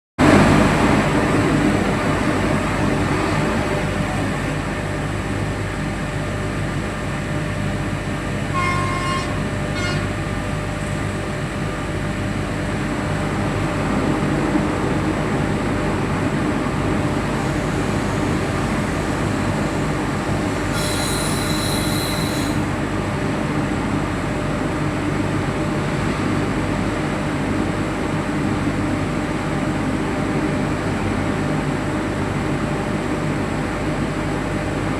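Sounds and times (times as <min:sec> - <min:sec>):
train running rumble: 0:00.2 - 0:04.8, 0:12.1 - 0:23.2
high-pitched squeal: 0:00.9 - 0:04.6, 0:17.4 - 0:22.8
train horn: 0:08.5 - 0:10.4, 0:20.7 - 0:22.8.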